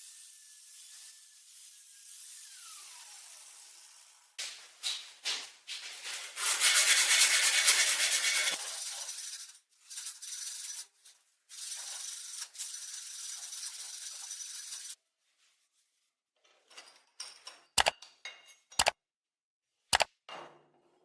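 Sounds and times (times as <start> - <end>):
sanding abrasive rubbing: 0.0 - 4.2, 5.9 - 15.0.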